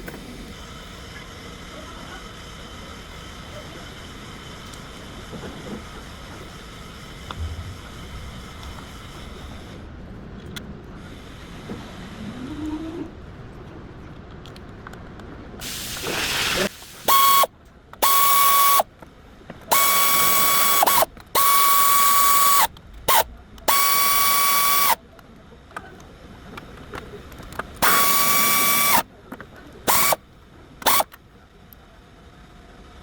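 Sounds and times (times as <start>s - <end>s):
compressed air blasts hissing: 15.6s - 18.8s, 29.9s - 30.2s.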